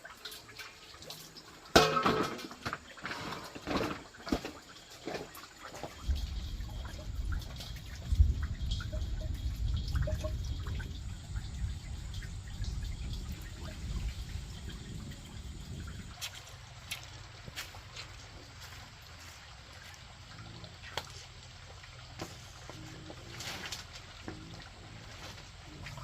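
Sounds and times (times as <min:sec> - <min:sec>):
water dripping and trickling: 0:00.0 - 0:26.0
low rumble: 0:06.2 - 0:16.8.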